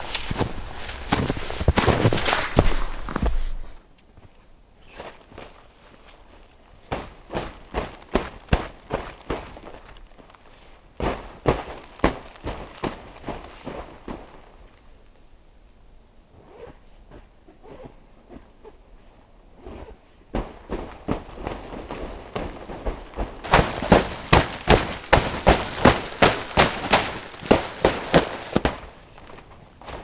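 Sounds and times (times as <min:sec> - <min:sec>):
crunching footsteps: 0:00.0 - 0:03.8, 0:23.4 - 0:30.0.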